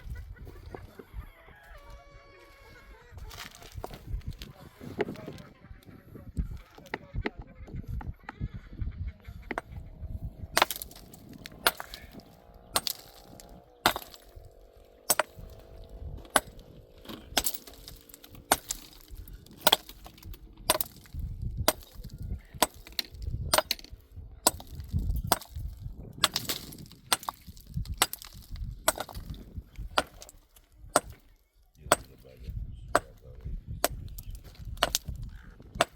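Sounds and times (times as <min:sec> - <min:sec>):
sharp chopping blows: 0:10.4 - 0:31.3.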